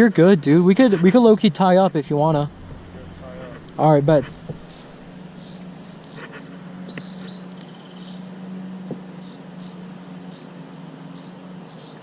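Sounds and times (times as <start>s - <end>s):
steady low hum: 0.0s - 11.8s
small birds chirping: 2.8s - 12.0s.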